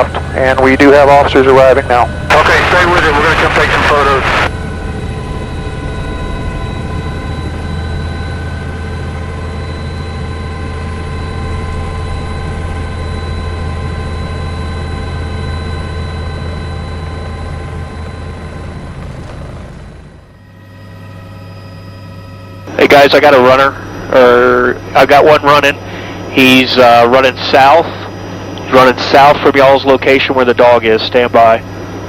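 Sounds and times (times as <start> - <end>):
aircraft engine drone: 0.0 - 32.0.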